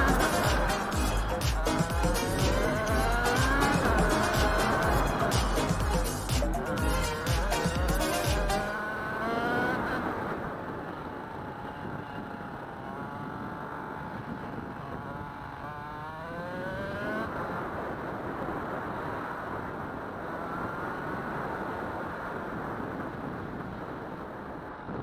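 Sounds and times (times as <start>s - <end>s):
two-stroke motorcycle engine revving: 0.0s - 10.6s, 11.2s - 17.6s.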